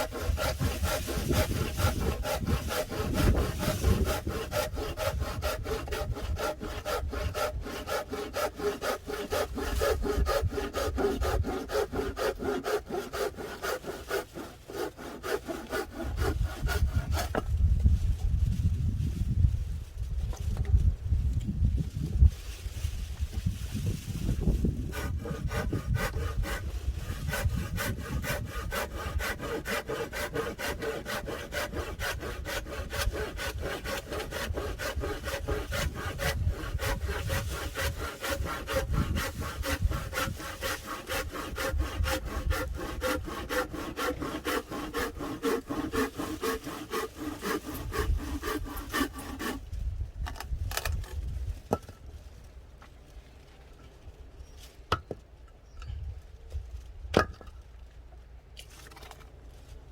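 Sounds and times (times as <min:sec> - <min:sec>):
saw cutting wood: 0:00.0 - 0:17.5, 0:24.3 - 0:49.7.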